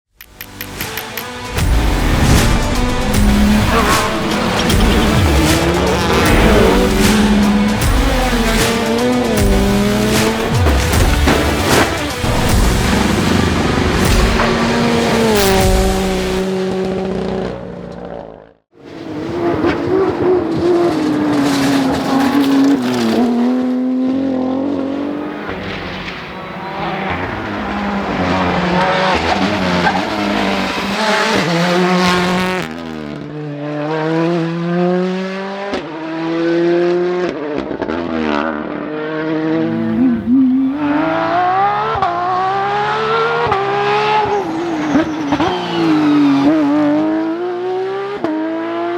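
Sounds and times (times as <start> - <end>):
rally car engines revving: 0.6 - 48.9
tyre noise: 1.9 - 16.9.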